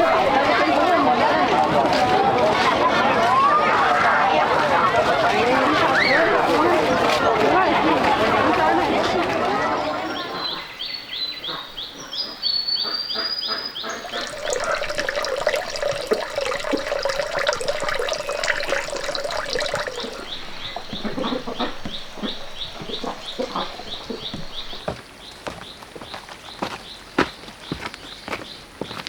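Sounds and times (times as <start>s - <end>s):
whistled bird call: 16.9s - 24.9s.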